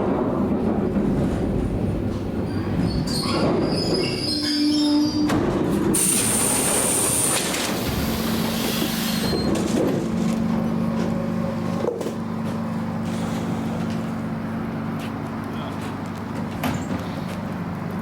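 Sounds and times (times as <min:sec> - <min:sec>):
train low hum: 0:00.0 - 0:18.0
train wheels squealing: 0:02.5 - 0:05.3, 0:08.8 - 0:09.5.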